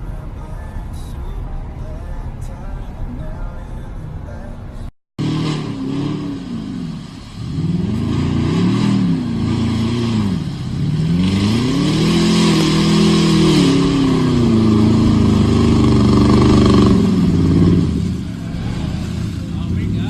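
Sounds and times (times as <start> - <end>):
truck engine revving: 5.2 - 20.0.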